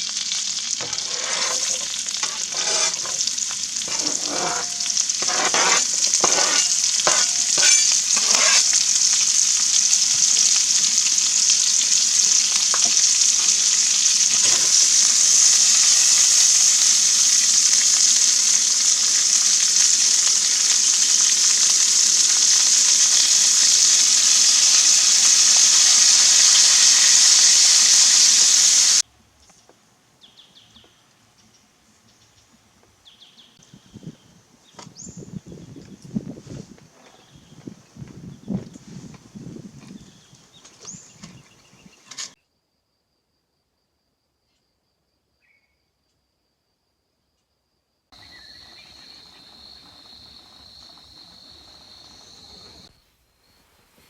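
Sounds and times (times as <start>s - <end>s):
food sizzling in a frying pan: 0.0s - 29.1s, 40.9s - 42.4s, 48.2s - 53.0s
utensil scraping a pan: 0.8s - 9.3s, 11.7s - 16.0s
faint bird chirps: 45.4s - 46.0s.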